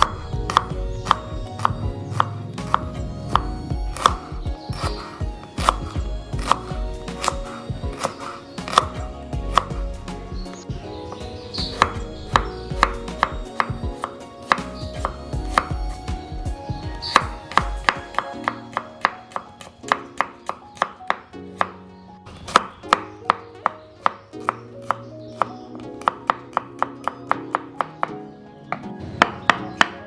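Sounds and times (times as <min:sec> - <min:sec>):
knife chopping on cutting board: 0:00.0 - 0:09.8
background music: 0:00.0 - 0:30.0.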